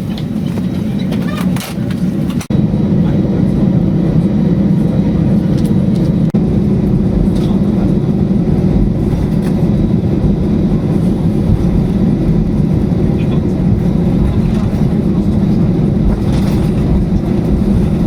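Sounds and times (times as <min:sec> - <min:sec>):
vehicle rumble from inside: 0:04.8 - 0:18.0.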